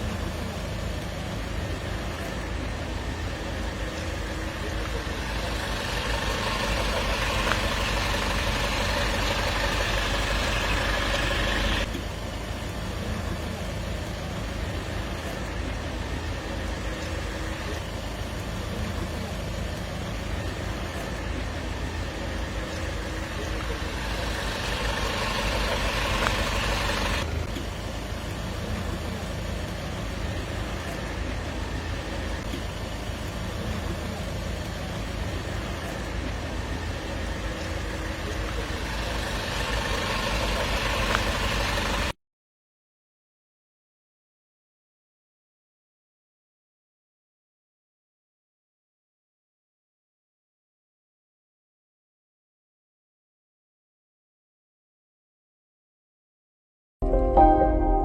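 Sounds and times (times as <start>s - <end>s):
road traffic rumble: 0.0s - 42.2s.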